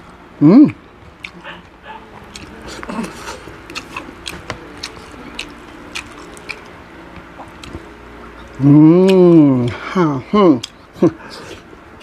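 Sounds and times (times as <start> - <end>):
crunchy chewing: 1.1 - 9.9.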